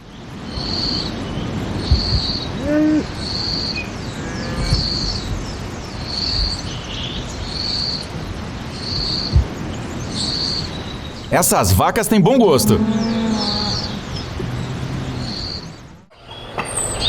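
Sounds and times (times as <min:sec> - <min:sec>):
brief low call: 0:11.3 - 0:13.0.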